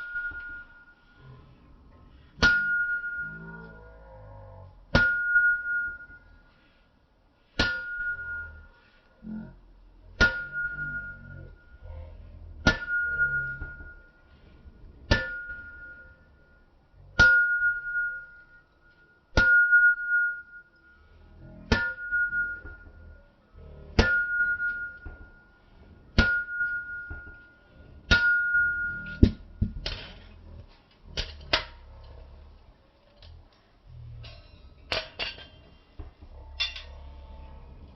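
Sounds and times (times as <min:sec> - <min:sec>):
hammer ringing on anvil: 0:00.0 - 0:01.0, 0:02.4 - 0:03.6, 0:04.9 - 0:06.2, 0:07.6 - 0:08.7, 0:10.2 - 0:11.7, 0:12.6 - 0:14.2, 0:15.1 - 0:16.6, 0:17.2 - 0:18.6, 0:19.3 - 0:21.0, 0:21.7 - 0:23.2, 0:23.9 - 0:25.6, 0:26.2 - 0:27.5, 0:28.1 - 0:29.4
dull hammer strikes: 0:04.9 - 0:06.0, 0:07.6 - 0:08.2, 0:10.2 - 0:11.1, 0:12.6 - 0:14.0, 0:15.1 - 0:15.9, 0:21.7 - 0:22.9, 0:24.0 - 0:25.4, 0:26.2 - 0:27.4, 0:28.1 - 0:30.0.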